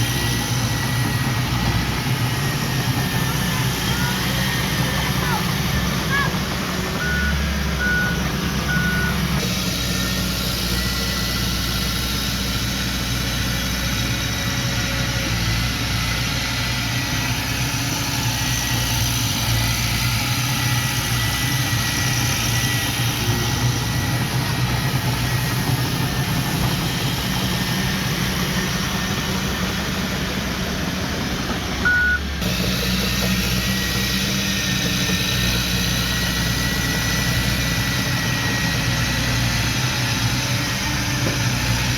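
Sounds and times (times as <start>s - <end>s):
heavy machinery diesel engine: 0.0s - 41.9s
reversing alarm beeps: 7.0s - 9.4s, 31.8s - 32.3s.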